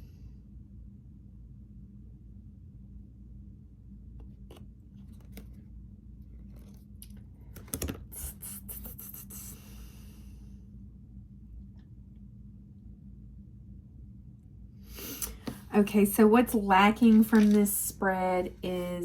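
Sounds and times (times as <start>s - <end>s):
cards flicking and tapping: 7.5s - 8.1s, 17.1s - 17.7s.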